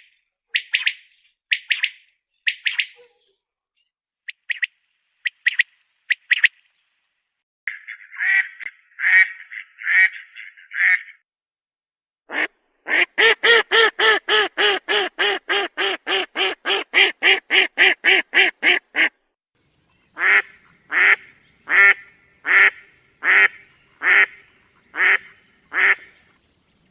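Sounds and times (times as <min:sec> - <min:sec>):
duck quacking: 0:08.1 - 0:11.1, 0:12.3 - 0:19.2, 0:20.2 - 0:26.2.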